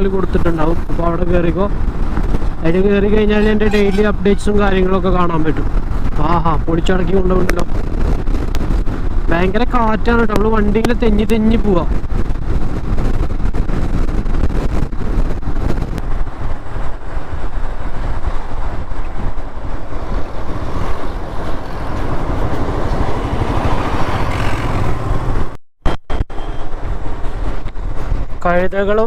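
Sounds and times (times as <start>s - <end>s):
road noise: 0.0s - 29.0s
wind buffeting microphone: 0.0s - 29.0s
motorcycle engine: 19.3s - 25.6s.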